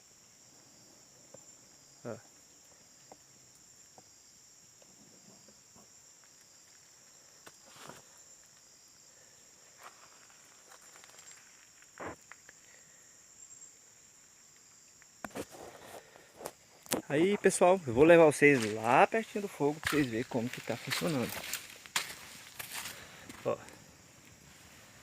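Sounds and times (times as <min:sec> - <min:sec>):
forest insects chorus: 0:00.0 - 0:25.0.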